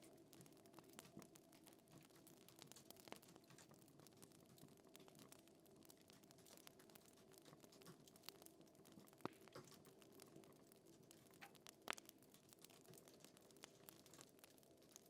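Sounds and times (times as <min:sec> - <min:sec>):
fire crackling: 0:00.0 - 0:15.0
fire popping: 0:00.0 - 0:15.0.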